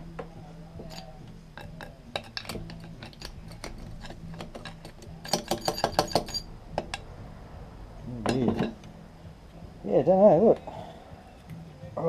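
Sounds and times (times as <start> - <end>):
metal parts clicking and knocking: 0.8 - 7.0
sharp metal clinks: 0.8 - 7.0.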